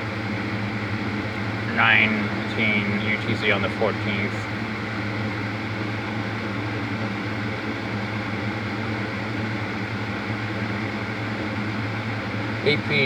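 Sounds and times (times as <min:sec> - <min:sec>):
low machine hum: 0:00.0 - 0:13.0
constant hiss: 0:01.7 - 0:04.4.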